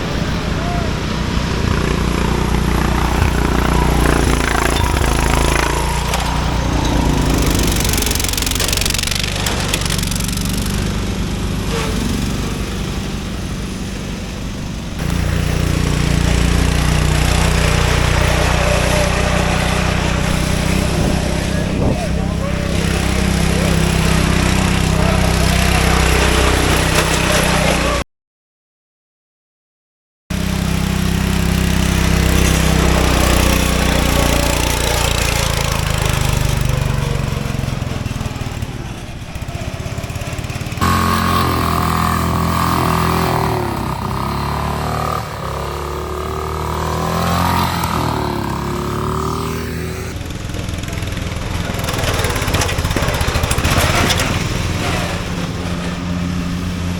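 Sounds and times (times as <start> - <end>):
lawn mower engines revving: 0.0 - 28.0, 30.3 - 56.9.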